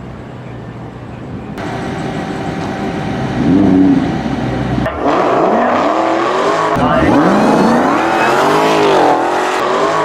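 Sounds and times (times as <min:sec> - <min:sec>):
car engine revving: 0:01.6 - 0:10.0.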